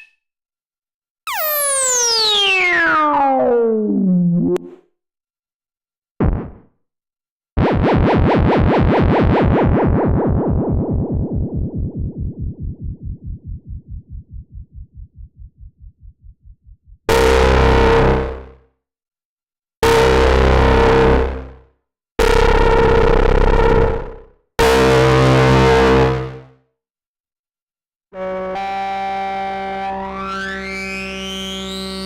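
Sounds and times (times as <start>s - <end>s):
synthesizer falling pitch sweep: 7.6s - 16.2s
rapidly pulsing synth tone: 7.6s - 17.0s.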